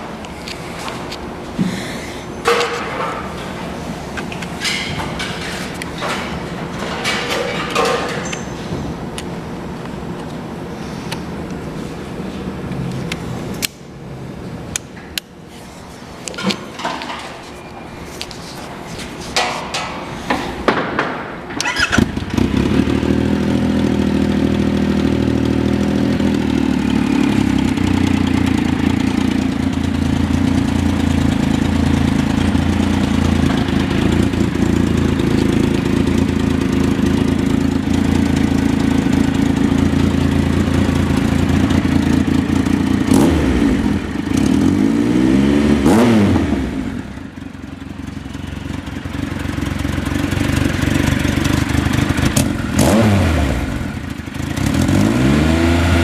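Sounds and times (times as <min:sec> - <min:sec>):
motorcycle engine starting and idling: 0:20.7 - 0:56.0
engine revving: 0:21.6 - 0:29.0, 0:42.6 - 0:47.1, 0:51.5 - 0:56.0.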